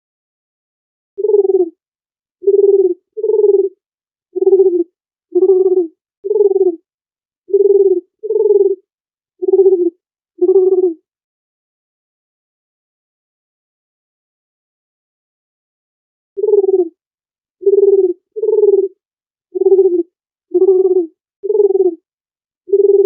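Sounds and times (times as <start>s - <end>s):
dove cooing: 1.2s - 1.8s, 2.4s - 3.8s, 4.4s - 6.8s, 7.5s - 8.8s, 9.4s - 11.0s, 16.4s - 17.0s, 17.6s - 19.0s, 19.6s - 22.0s, 22.7s - 23.0s.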